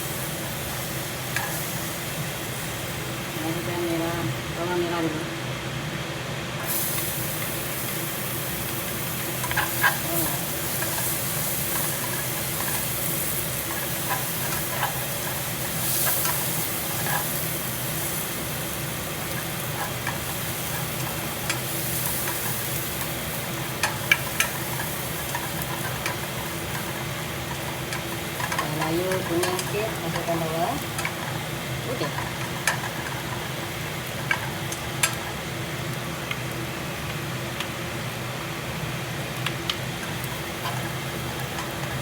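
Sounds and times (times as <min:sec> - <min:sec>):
exhaust fan hum: 0:00.0 - 0:42.0
shallots sizzling in a pan: 0:00.0 - 0:42.0
utensil clicking against pan: 0:09.3 - 0:17.4, 0:19.2 - 0:23.1, 0:23.7 - 0:37.8, 0:39.4 - 0:42.0.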